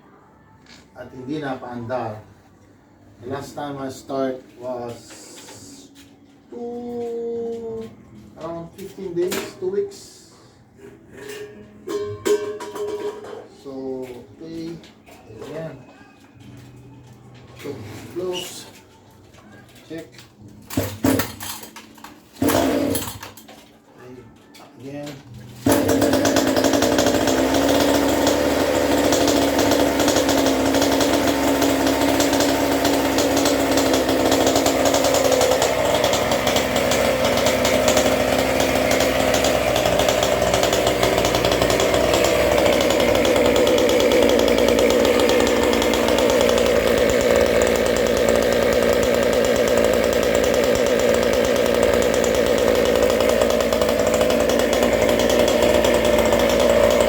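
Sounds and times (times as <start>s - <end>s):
small two-stroke engine running: 22.4s - 23.4s, 25.5s - 57.0s.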